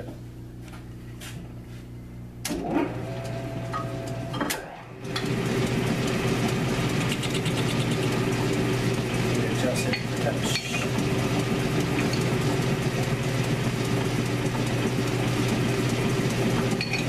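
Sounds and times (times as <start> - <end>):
lathe motor hum: 2.5 - 17.0.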